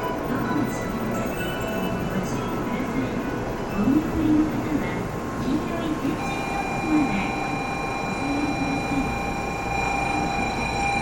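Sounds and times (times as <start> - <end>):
faint murmur of passengers: 0.0 - 11.0
train electrical whine: 0.0 - 11.0
platform noise: 6.2 - 11.0.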